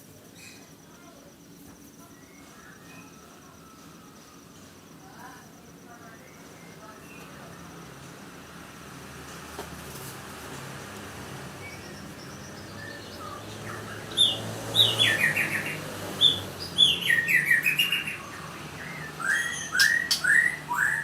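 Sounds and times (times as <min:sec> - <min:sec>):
bird singing whistled notes: 0:02.1 - 0:04.4, 0:11.6 - 0:21.0.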